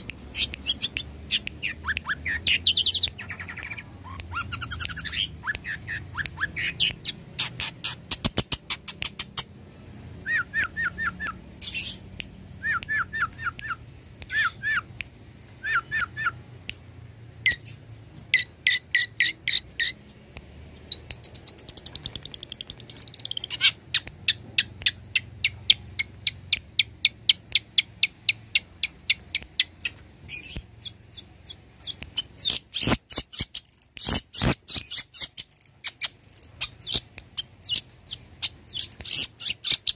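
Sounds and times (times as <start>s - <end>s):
rapid clicking bird notes: 0.1s - 9.5s.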